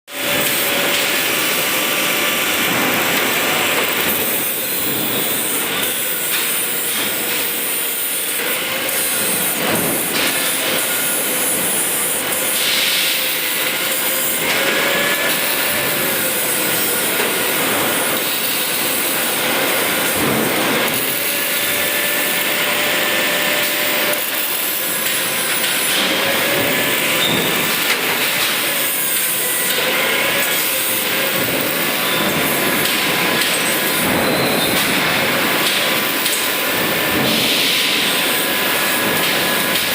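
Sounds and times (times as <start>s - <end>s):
welding arc sizzle: 0.1s - 39.9s.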